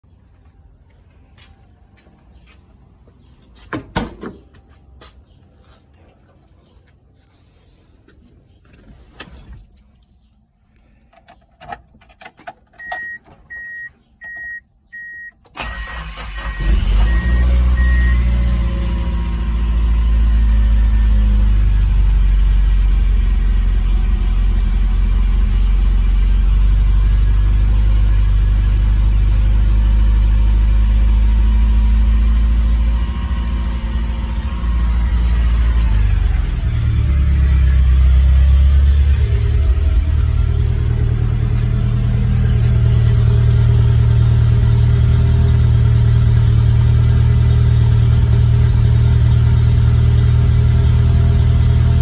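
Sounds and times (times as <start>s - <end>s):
car engine starting and idling: 12.0s - 52.0s.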